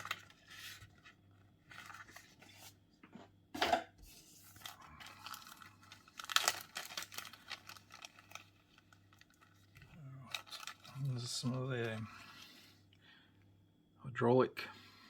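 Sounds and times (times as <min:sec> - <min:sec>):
packaging crinkling and rustling: 0:00.0 - 0:02.8, 0:04.1 - 0:12.6.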